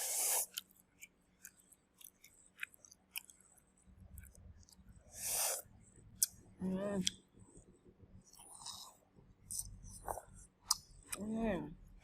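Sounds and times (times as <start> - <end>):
person chewing crunchy food: 0.0 - 6.4, 8.2 - 11.2.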